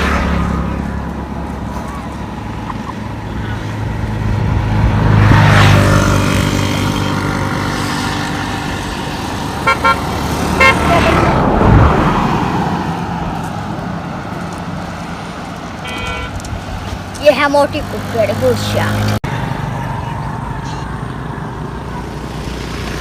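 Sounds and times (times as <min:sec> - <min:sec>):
vehicles passing by: 0:00.0 - 0:23.0
short horn beeps: 0:15.8 - 0:16.4.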